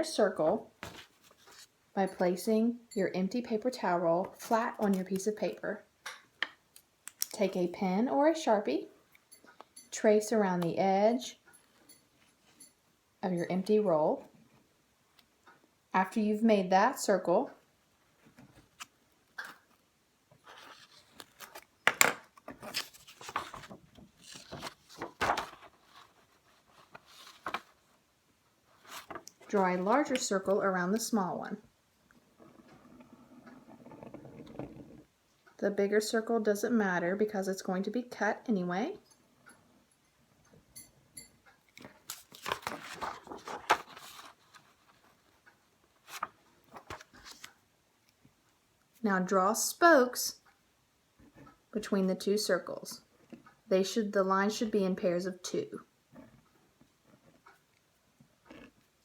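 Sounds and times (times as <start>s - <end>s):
paper rustling and scraping: 0.8s - 1.7s, 20.4s - 21.7s, 22.4s - 27.9s, 28.7s - 30.2s, 42.1s - 45.4s.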